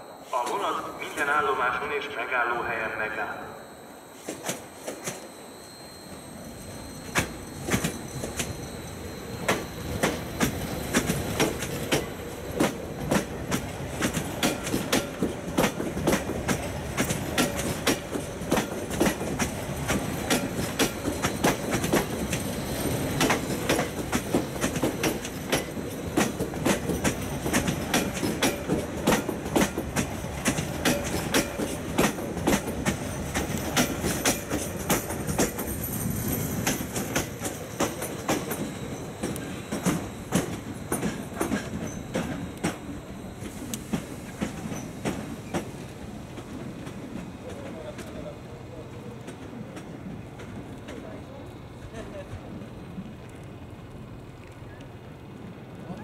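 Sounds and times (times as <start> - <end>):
train wheels clattering over joints: 7.0 - 48.2.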